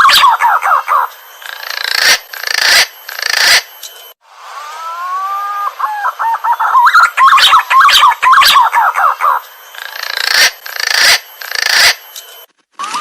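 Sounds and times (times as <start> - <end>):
pigeon whistled calls: 0.0 - 1.1, 4.8 - 9.8
harsh rasping bird bursts: 0.0 - 3.7, 5.8 - 12.1.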